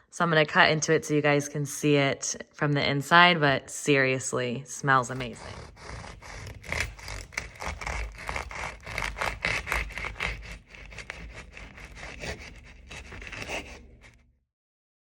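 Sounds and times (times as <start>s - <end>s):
knife sawing through crusty bread: 5.0s - 14.2s.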